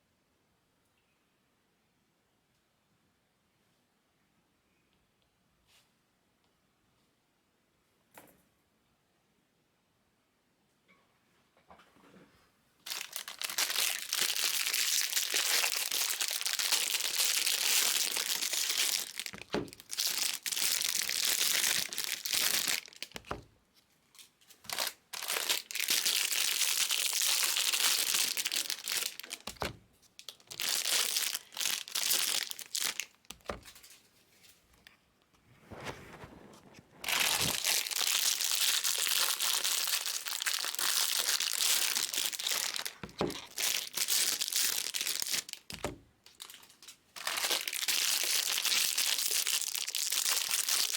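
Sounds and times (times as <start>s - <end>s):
card pack wrappers crinkling and tearing: 12.8s - 23.4s, 24.1s - 34.0s, 37.0s - 50.9s.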